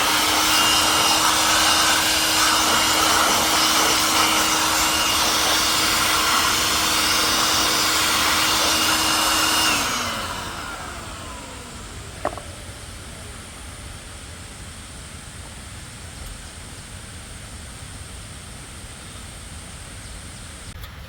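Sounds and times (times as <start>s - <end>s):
power tool motor winding down: 0.0s - 13.9s.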